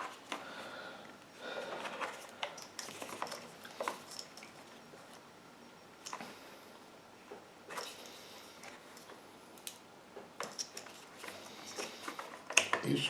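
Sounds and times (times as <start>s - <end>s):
small handling clicks and rustles: 1.2s - 5.2s, 7.2s - 13.0s.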